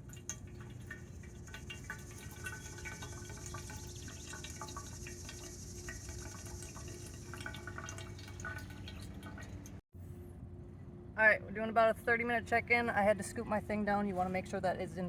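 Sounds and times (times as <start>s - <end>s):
water dripping into container: 0.0s - 9.8s.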